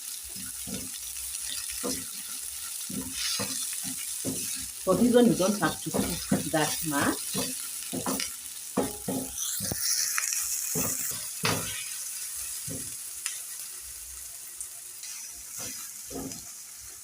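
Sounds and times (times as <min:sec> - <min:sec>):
onions sizzling in oil: 0:00.0 - 0:17.0
spoon knocking against pan: 0:00.4 - 0:09.8, 0:10.7 - 0:11.8, 0:12.6 - 0:13.0, 0:15.6 - 0:16.4.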